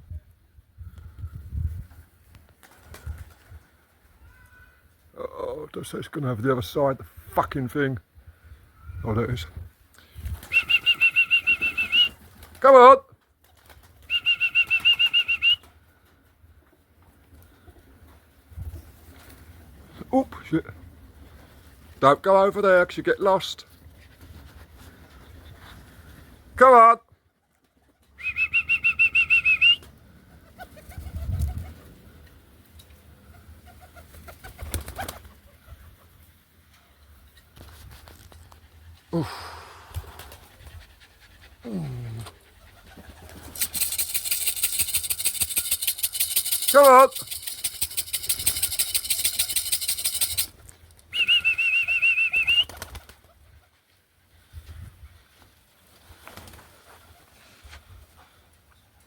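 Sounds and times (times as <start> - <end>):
loud trilling whistle: 10.5 - 12.2, 14.1 - 15.6, 28.2 - 29.8, 51.2 - 52.7
wing flutters: 33.6 - 36.0, 39.8 - 41.0, 41.7 - 50.6
fast even rattle: 43.3 - 50.5.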